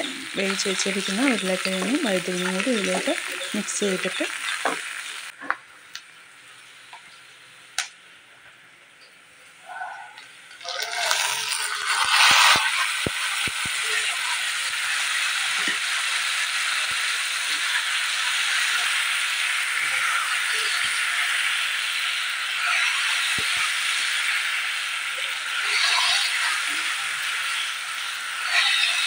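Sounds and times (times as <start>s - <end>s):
vegetables sizzling in oil: 0.0s - 29.0s.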